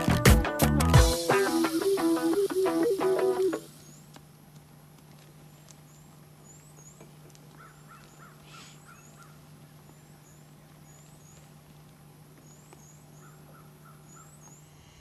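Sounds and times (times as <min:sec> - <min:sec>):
steady low hum: 0:03.6 - 0:15.0
harsh bird calls: 0:05.8 - 0:11.5, 0:12.4 - 0:15.0.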